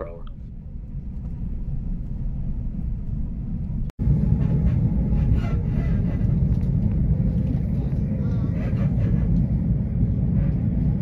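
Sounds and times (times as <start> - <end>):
train wheels rumbling on rails: 0.2 - 11.0.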